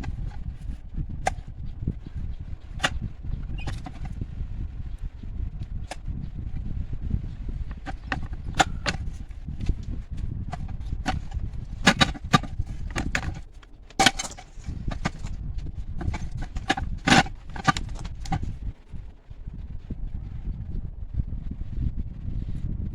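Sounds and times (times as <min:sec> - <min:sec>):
irregular knocks and clicks: 0:03.6 - 0:04.1, 0:07.7 - 0:09.8, 0:10.5 - 0:15.4, 0:16.0 - 0:18.5.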